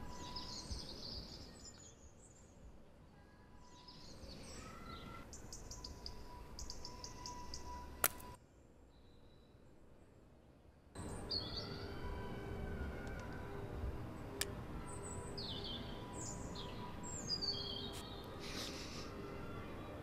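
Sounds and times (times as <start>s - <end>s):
small birds chirping and trilling: 0.0s - 9.6s, 11.0s - 12.2s, 14.7s - 19.9s
low outdoor rumble: 9.8s - 20.0s.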